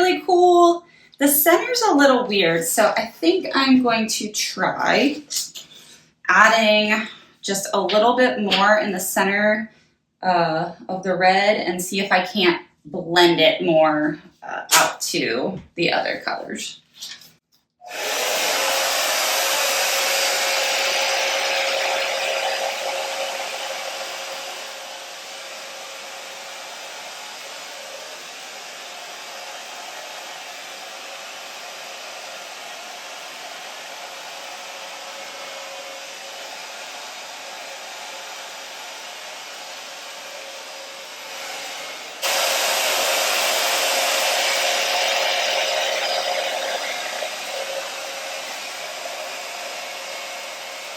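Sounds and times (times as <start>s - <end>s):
blow dryer running: 17.9s - 50.9s.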